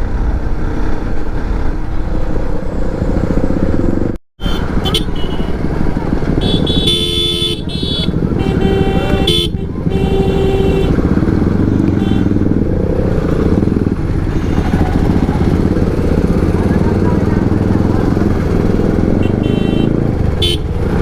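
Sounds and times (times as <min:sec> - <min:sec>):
motorcycle running: 0:00.0 - 0:21.0
vehicle horn honking: 0:04.4 - 0:05.6, 0:06.4 - 0:11.1, 0:11.9 - 0:12.5, 0:19.2 - 0:20.8.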